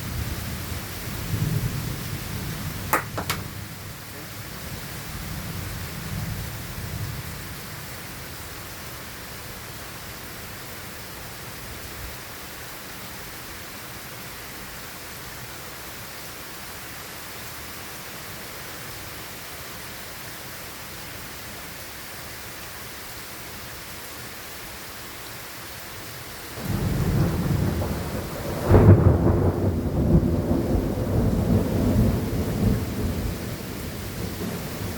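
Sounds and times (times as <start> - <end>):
steady rain hiss: 0.0 - 34.9.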